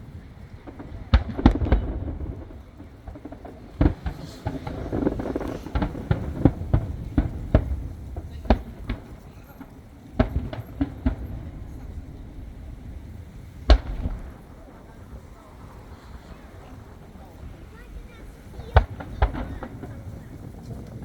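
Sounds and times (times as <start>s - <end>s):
firework shells bursting: 0.0s - 21.0s.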